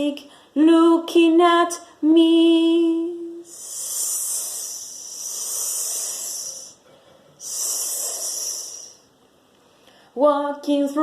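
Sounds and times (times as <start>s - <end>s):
person hissing like a snake: 3.5s - 6.8s, 7.4s - 9.1s.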